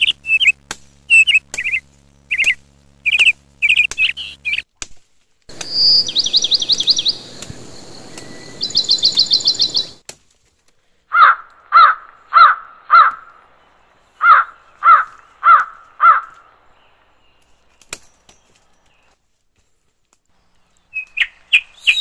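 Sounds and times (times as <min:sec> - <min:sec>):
bird trills: 0:00.0 - 0:04.6, 0:05.5 - 0:10.0, 0:20.6 - 0:22.0
loud harsh bird calls: 0:00.0 - 0:04.6, 0:05.5 - 0:10.0, 0:11.1 - 0:16.6.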